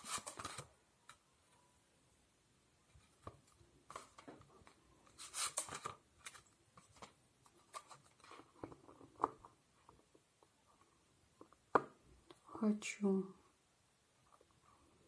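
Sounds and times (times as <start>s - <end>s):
cards rustling: 0.0s - 0.7s, 5.1s - 9.4s.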